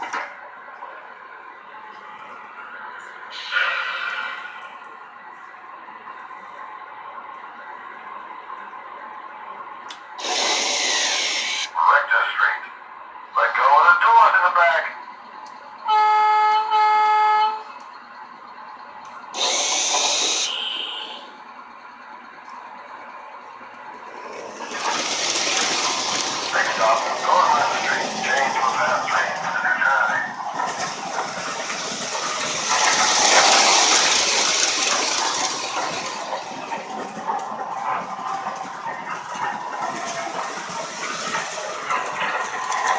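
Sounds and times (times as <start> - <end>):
model train running: 0.0 - 6.6, 7.3 - 42.9
loud hiss of air: 3.3 - 4.6, 10.2 - 11.7, 19.4 - 21.1
toy train horn toots: 15.8 - 17.7, 19.4 - 21.3.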